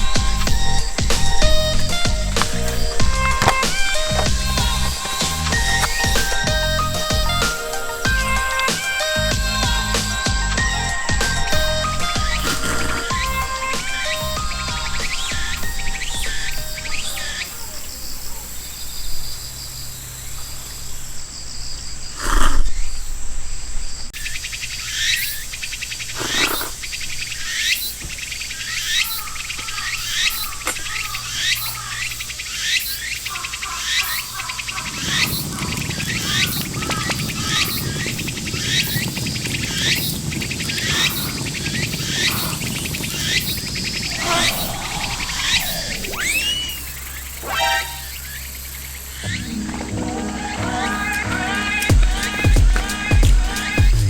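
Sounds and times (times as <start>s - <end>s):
low rushing noise: 0.0s - 17.6s, 34.6s - 54.0s
cicadas calling falling notes: 0.0s - 54.0s
high insect trill: 0.0s - 54.0s.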